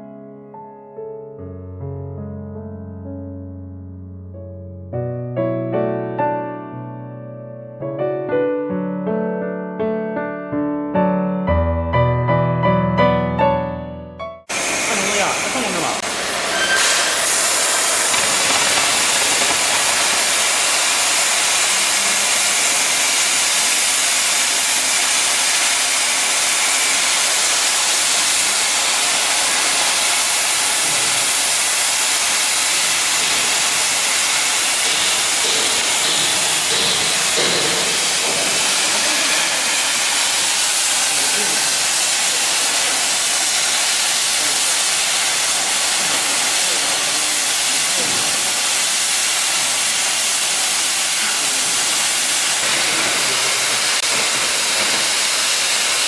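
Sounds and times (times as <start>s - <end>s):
plasma torch cutting metal hiss: 14.5s - 56.0s.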